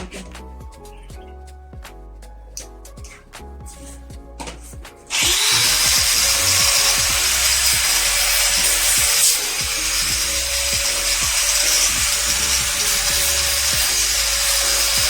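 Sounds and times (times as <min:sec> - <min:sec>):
background music with a beat: 0:00.0 - 0:15.0
angle grinder sanding wood: 0:05.1 - 0:15.0.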